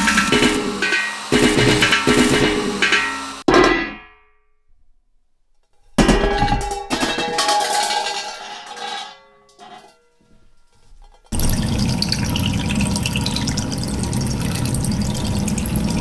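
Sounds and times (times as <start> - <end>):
metal cookware clanging: 0.0 - 4.3, 5.8 - 12.3.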